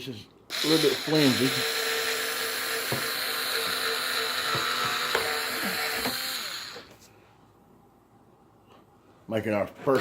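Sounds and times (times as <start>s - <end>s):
electric drill boring plastic: 0.5s - 7.0s.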